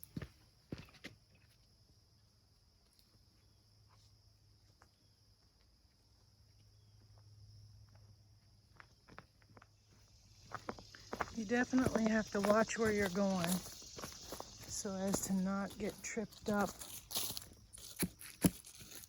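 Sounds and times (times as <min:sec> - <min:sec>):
footsteps: 0:08.7 - 0:19.0.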